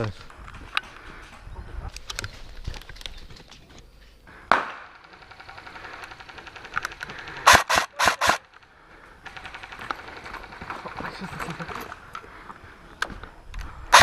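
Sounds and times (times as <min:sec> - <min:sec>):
airsoft gun shots: 0:04.5 - 0:05.0, 0:07.4 - 0:08.4.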